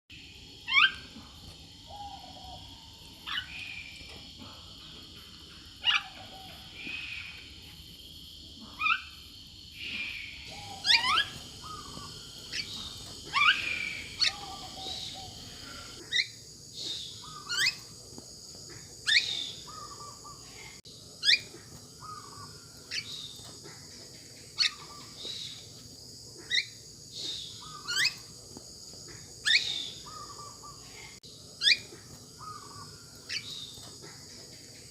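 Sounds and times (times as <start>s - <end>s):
steady high-pitched hiss: 0.1s - 34.9s
bird whistling calls: 9.8s - 17.9s, 19.1s - 20.5s, 21.2s - 23.3s, 26.4s - 28.2s, 29.4s - 30.8s, 31.6s - 33.7s.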